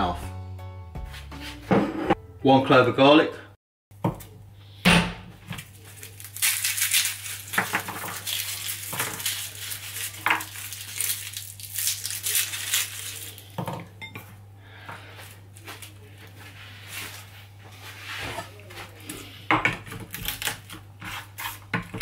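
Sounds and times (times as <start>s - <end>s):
garlic skins crackling: 5.5s - 13.6s, 18.7s - 21.7s.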